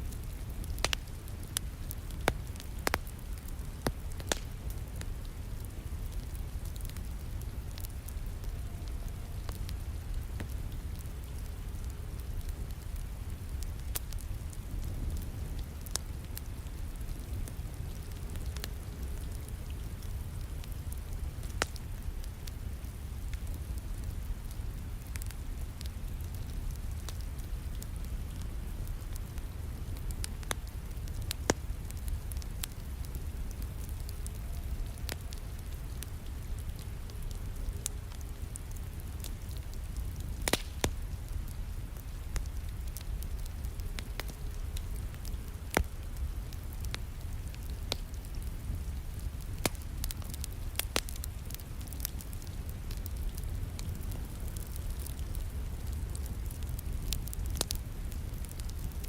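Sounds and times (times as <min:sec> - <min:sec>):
wood fire crackling: 0:00.0 - 0:59.0
sharp pops of fire: 0:00.7 - 0:07.0, 0:38.1 - 0:44.4, 0:45.2 - 0:46.1, 0:49.6 - 0:55.4, 0:56.1 - 0:57.8.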